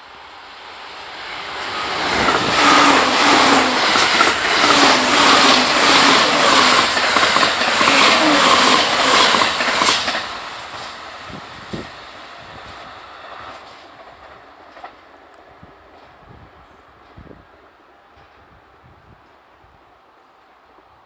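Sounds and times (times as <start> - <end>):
electric train passing at speed: 0.0 - 19.8
wheels clattering over rail joints: 1.4 - 11.8.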